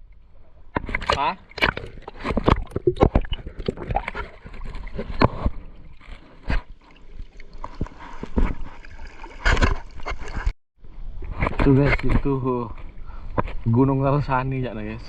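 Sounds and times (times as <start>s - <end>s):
water sloshing and splashing: 0.0s - 10.6s.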